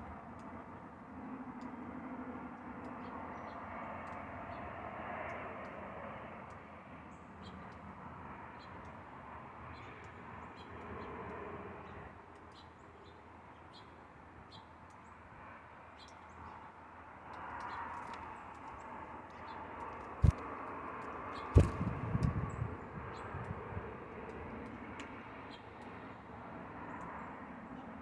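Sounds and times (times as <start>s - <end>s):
small birds chirping: 21.2s - 23.4s.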